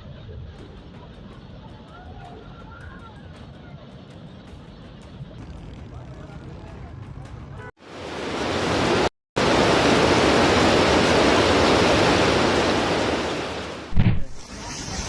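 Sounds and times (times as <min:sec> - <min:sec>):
floodwater rushing: 0:07.8 - 0:15.0
short low thump: 0:13.9 - 0:14.4.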